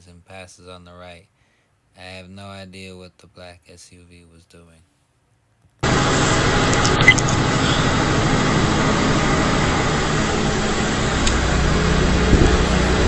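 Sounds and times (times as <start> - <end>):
truck engine and road noise: 5.8 - 13.0.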